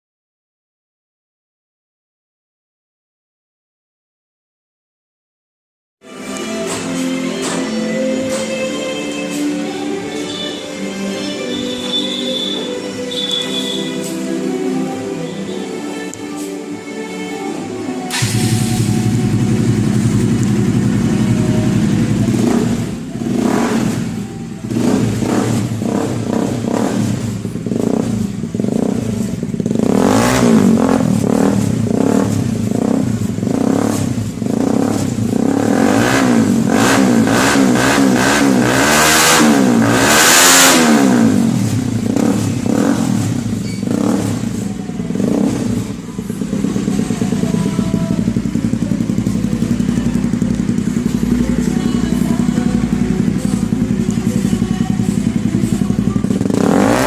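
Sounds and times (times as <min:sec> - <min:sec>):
motorcycle engine idling and revving: 0:09.3 - 0:15.5, 0:18.1 - 0:57.0.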